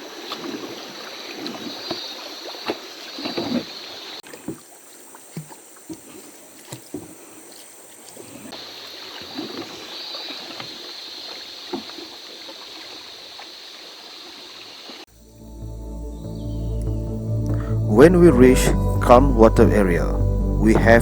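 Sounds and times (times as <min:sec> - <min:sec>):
river water running: 0:00.0 - 0:15.1
paddle splashing and knocking: 0:00.3 - 0:13.6.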